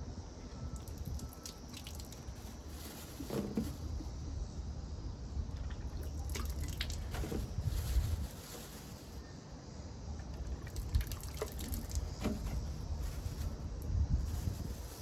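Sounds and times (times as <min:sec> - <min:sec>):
water dripping and trickling: 0:00.8 - 0:02.7, 0:05.5 - 0:07.4, 0:10.3 - 0:13.4.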